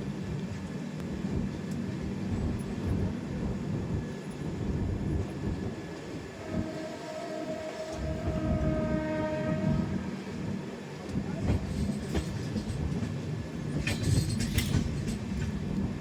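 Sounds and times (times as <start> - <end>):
train rumbling: 0.0 - 16.0
train horn: 6.2 - 11.6.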